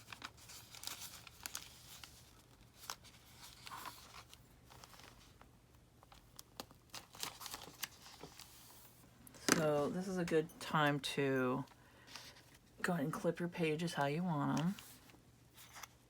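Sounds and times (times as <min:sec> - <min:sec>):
paper pages rustling and tapping: 0:00.0 - 0:05.4, 0:06.0 - 0:08.8, 0:14.4 - 0:16.0.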